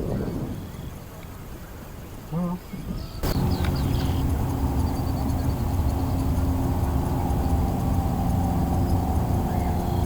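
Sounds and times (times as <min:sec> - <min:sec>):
engine running steadily: 0:03.2 - 0:10.0.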